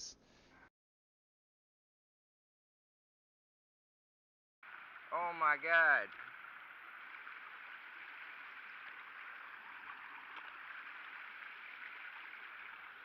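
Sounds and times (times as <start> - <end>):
running water: 4.6 - 13.0
small ticks: 6.1 - 13.0.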